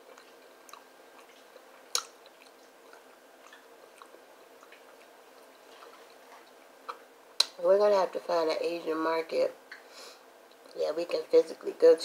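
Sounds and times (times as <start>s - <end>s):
person chewing: 0.0s - 7.5s
faint wet mouth clicks: 1.9s - 4.8s.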